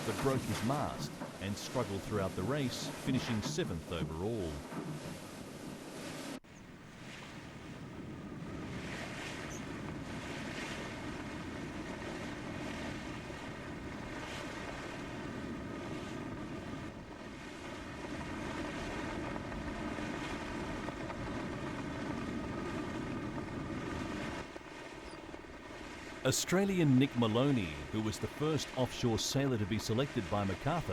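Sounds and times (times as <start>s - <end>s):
rushing water: 0.0s - 6.4s, 24.2s - 30.9s
wind: 0.0s - 30.9s.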